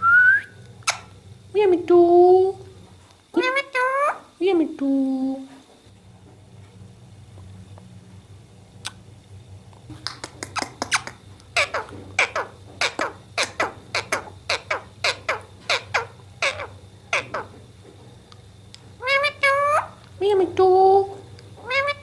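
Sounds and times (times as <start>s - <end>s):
parrot squawking: 3.4s - 4.3s, 10.6s - 17.6s, 19.0s - 20.0s, 21.6s - 22.0s.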